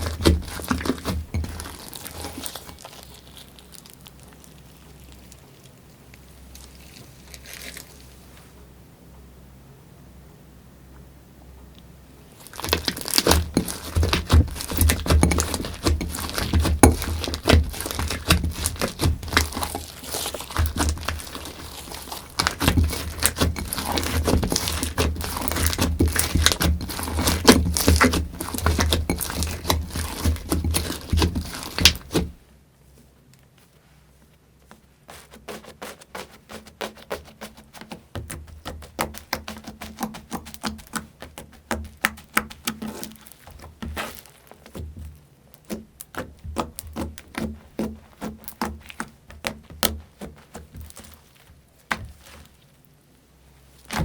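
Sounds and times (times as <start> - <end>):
slime crackling and popping: 0.0 - 8.2, 12.4 - 32.4, 38.3 - 52.8, 53.8 - 54.0.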